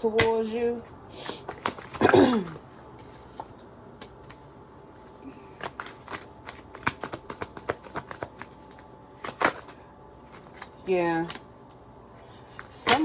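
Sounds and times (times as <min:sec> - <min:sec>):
cards rustling: 0:01.3 - 0:02.0, 0:05.0 - 0:11.4.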